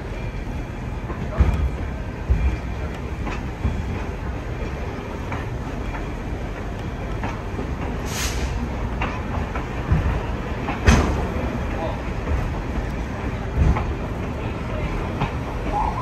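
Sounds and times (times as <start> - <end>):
train car rumbling on track: 0.0 - 16.0
wheels clicking over rails: 0.0 - 16.0
brief hiss: 8.1 - 8.6.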